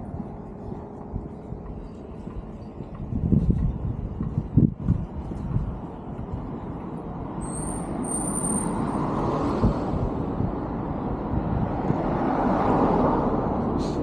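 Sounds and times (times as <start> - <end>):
road vehicle passing: 0.0 - 14.0
thin high squeal: 7.4 - 9.0.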